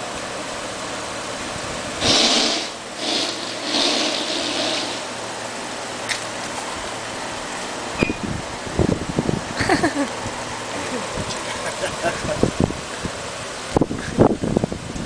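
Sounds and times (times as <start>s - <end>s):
car tyres hissing: 0.0s - 8.7s.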